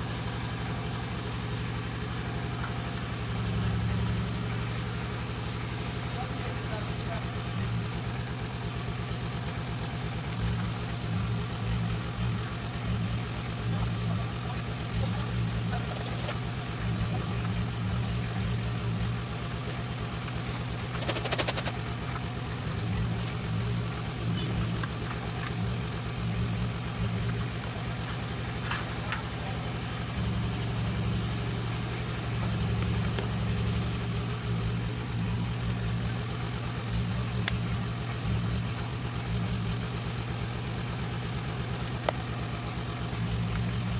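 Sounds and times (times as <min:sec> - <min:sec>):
engine idling: 0:00.0 - 0:43.9
sharp clatter: 0:20.4 - 0:22.3.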